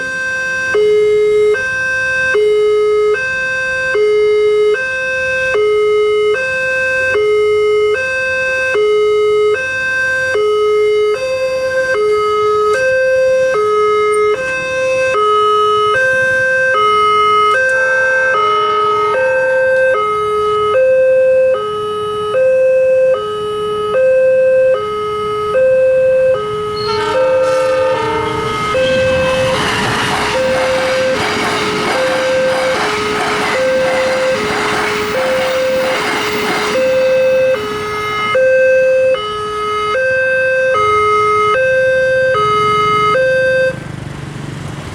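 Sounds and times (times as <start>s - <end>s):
level crossing alarm tones: 0.0s - 43.8s
train passing: 10.2s - 20.7s, 26.4s - 39.7s.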